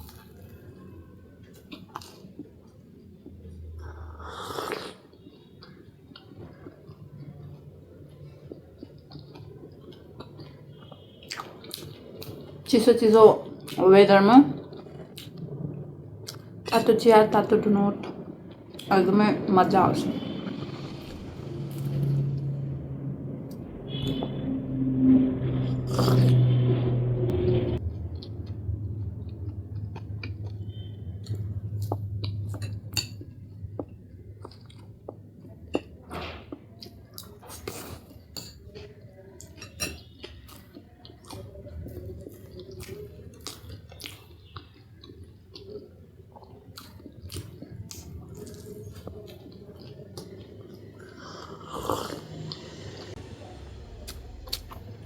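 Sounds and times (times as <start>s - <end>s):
wet chewing and mouth noises: 0.0s - 12.8s, 14.5s - 16.9s, 27.8s - 53.2s, 53.8s - 55.0s
low hum: 14.6s - 35.1s, 47.7s - 55.0s.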